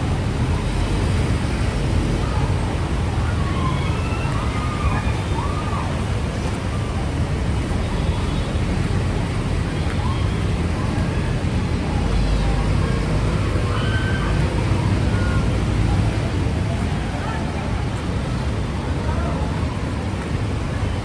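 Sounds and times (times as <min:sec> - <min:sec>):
faint voices: 0:00.0 - 0:21.0
street noise with low rumble: 0:00.0 - 0:21.0.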